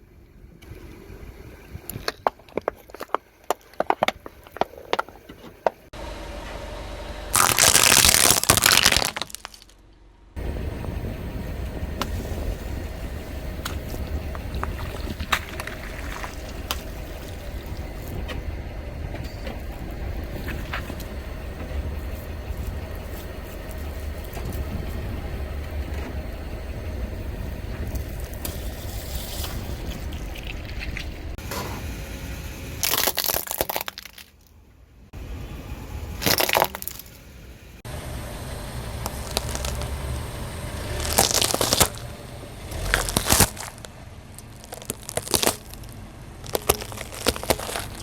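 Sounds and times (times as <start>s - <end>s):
car engine rumbling: 0.0s - 48.0s
small cracks: 7.4s - 9.8s, 32.8s - 34.5s, 36.2s - 37.2s, 39.0s - 39.9s, 40.8s - 42.1s, 42.7s - 48.0s
tyre crushing brittle objects: 7.4s - 9.8s, 14.6s - 17.4s, 32.8s - 34.4s, 36.2s - 37.2s, 39.0s - 40.0s, 40.8s - 42.1s, 42.7s - 48.0s.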